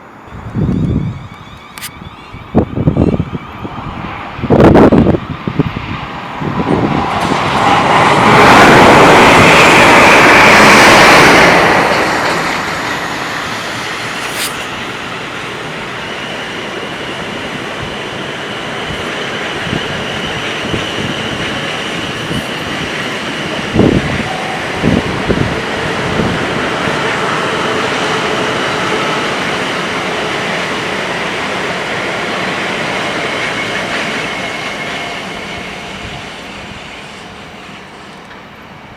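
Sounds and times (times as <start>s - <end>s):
train passing at speed: 0.0s - 38.9s
faint high steady tone: 24.2s - 25.6s.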